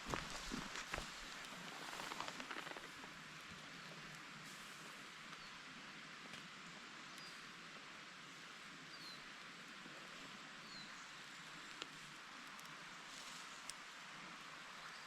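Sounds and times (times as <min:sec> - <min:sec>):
woodland hiss: 0:00.0 - 0:15.0.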